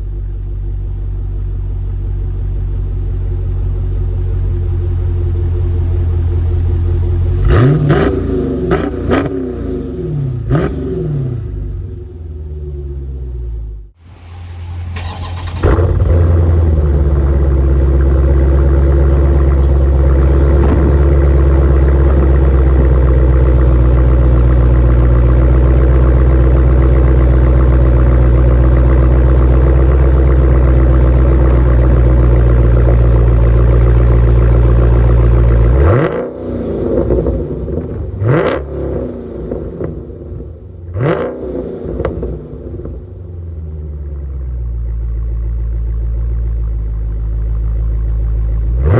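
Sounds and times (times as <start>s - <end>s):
engine throttle blips: 6.8s - 43.4s
vee-eight engine fast idle: 14.0s - 35.7s.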